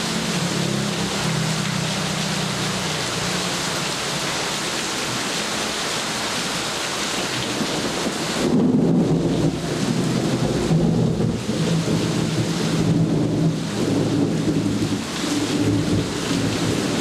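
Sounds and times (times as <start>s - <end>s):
heavy rain falling: 0.0s - 17.0s
low thunder rumble: 7.5s - 17.0s.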